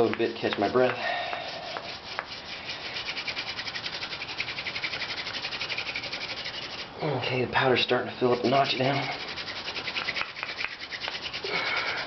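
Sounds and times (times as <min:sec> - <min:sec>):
wood grinding on wood: 0:00.0 - 0:07.0, 0:07.6 - 0:12.0.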